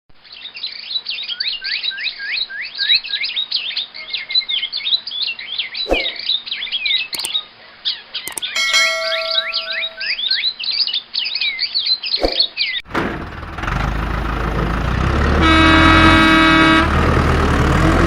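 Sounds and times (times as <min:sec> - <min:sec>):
small birds chirping: 0:00.2 - 0:12.8
clicks: 0:08.3 - 0:10.1
held musical tone: 0:08.3 - 0:10.2.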